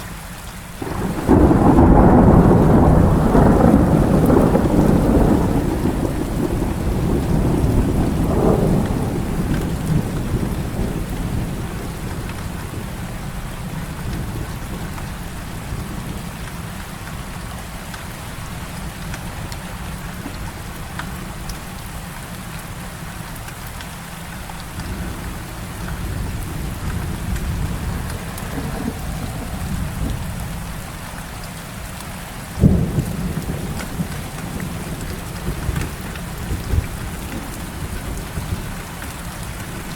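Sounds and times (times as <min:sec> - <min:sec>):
heavy rain falling: 0:00.0 - 0:39.9
thunderclap: 0:00.8 - 0:15.1, 0:24.7 - 0:31.1, 0:32.6 - 0:38.9
deep rolling thunder: 0:00.8 - 0:16.4, 0:24.6 - 0:31.1, 0:32.6 - 0:39.9.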